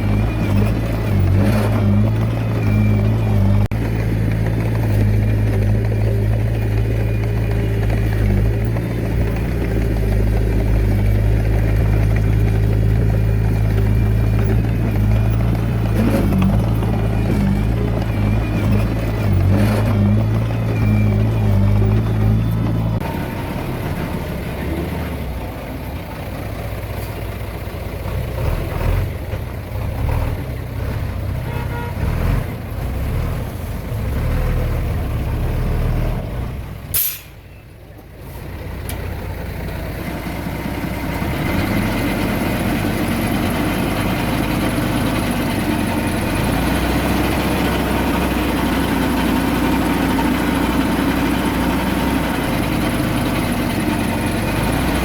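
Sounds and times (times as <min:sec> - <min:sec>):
diesel earthmoving machinery: 0:00.0 - 0:55.0
sharp hiss or click: 0:37.0 - 0:37.4.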